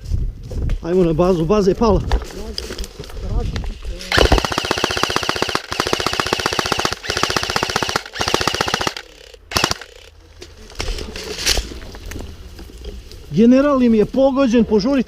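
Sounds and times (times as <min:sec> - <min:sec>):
airsoft gun full auto bursts: 0:04.1 - 0:10.1.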